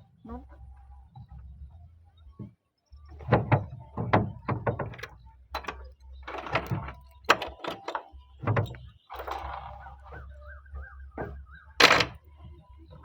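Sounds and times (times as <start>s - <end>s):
sharp knocks and clunks: 2.4s - 10.4s, 11.2s - 12.3s.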